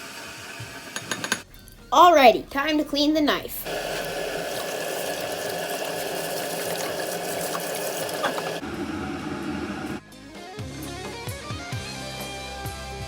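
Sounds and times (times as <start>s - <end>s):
kitchen tap running: 0.0s - 1.4s, 3.6s - 8.6s.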